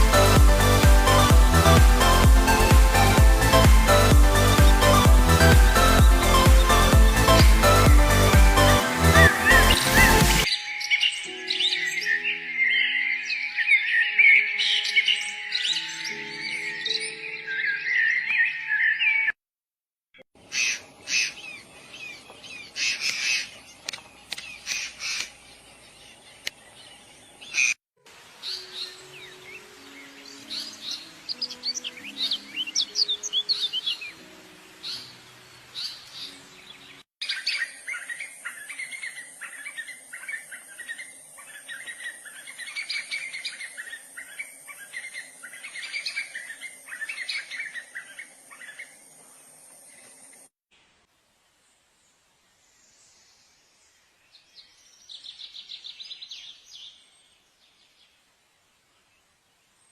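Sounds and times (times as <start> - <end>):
soft melody of low notes: 0.0 - 18.7
birds calling and chirping: 0.0 - 19.4, 20.3 - 27.8, 28.4 - 50.5.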